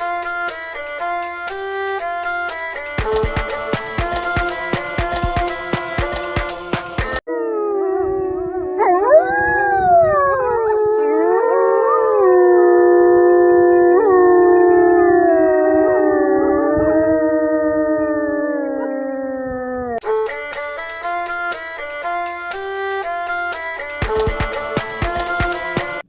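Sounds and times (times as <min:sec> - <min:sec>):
dogs howling: 0:07.3 - 0:20.0.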